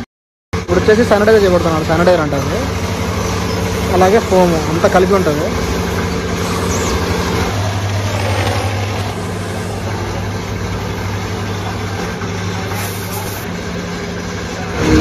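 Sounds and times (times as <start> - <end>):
motor humming: 1.5 - 15.0
water spray hissing: 12.7 - 13.5.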